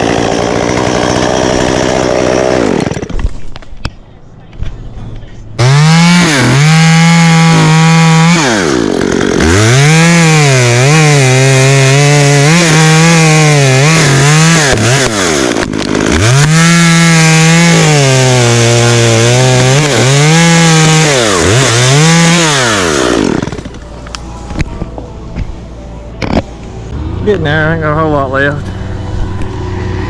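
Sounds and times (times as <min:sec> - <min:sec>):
chainsaw cutting wood: 0:00.0 - 0:03.6, 0:05.6 - 0:24.0.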